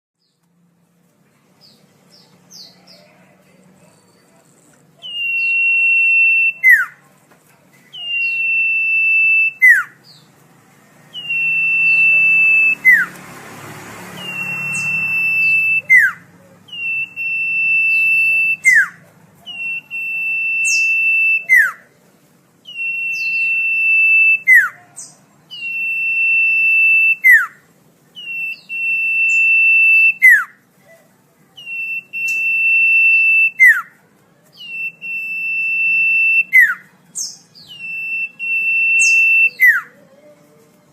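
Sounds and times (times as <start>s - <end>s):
bird whistling song: 5.0s - 7.0s, 7.9s - 10.3s, 11.1s - 13.2s, 14.1s - 21.9s, 22.6s - 30.6s, 31.6s - 40.0s.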